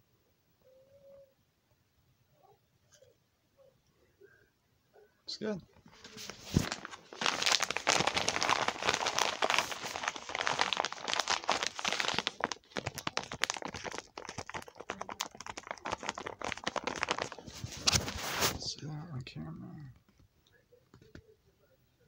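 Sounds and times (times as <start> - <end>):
plastic packaging crinkling: 5.9 - 18.7.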